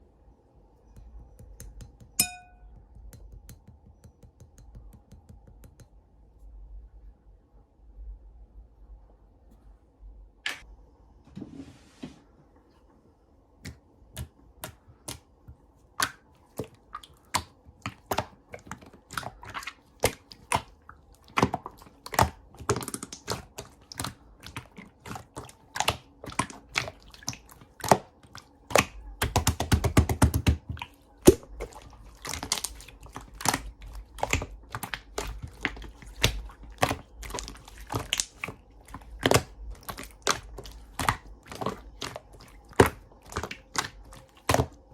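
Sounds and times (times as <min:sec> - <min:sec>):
slime crackling: 0:16.0 - 0:44.9
slime clicking and popping: 0:28.7 - 0:44.9.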